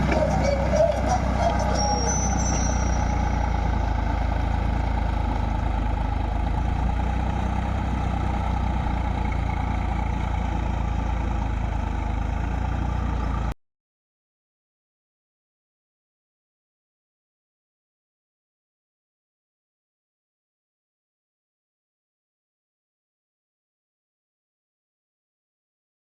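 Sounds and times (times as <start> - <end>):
tractor diesel engine running: 0.0 - 13.6.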